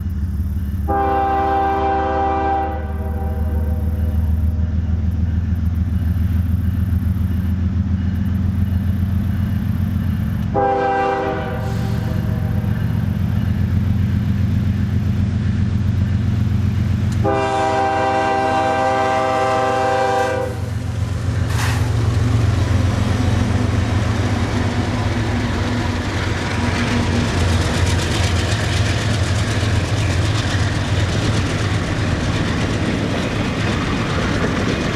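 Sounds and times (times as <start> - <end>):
diesel engine rumble: 0.0 - 1.0, 2.8 - 34.9
rolling train noise: 0.0 - 34.9
locomotive air horn: 0.9 - 4.2, 10.5 - 12.7, 17.2 - 22.1.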